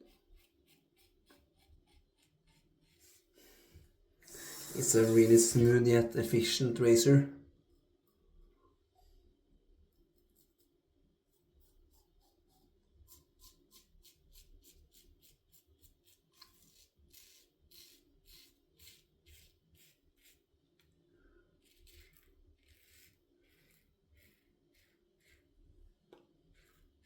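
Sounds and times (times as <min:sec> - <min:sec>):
razor scraping stubble: 0:00.0 - 0:03.4, 0:04.3 - 0:07.0, 0:11.6 - 0:20.9, 0:21.5 - 0:25.6.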